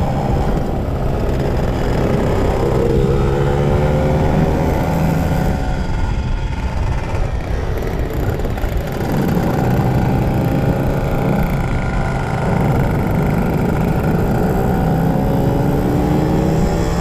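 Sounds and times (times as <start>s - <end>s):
two-stroke motorcycle engine: 0.0s - 17.0s.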